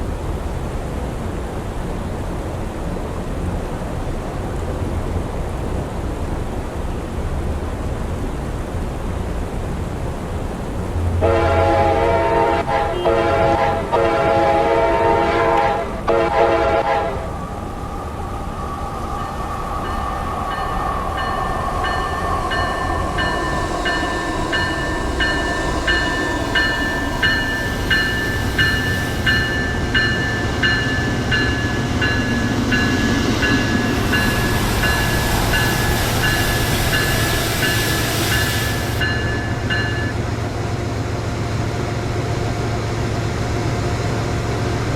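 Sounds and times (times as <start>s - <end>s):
train running past: 0.0s - 44.9s
train horn blasts: 11.2s - 17.3s
regular high pulsing: 17.2s - 40.4s.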